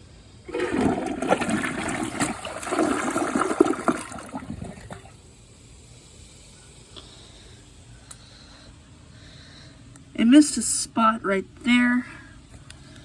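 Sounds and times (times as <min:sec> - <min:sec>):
toilet flushing: 0:00.4 - 0:05.3.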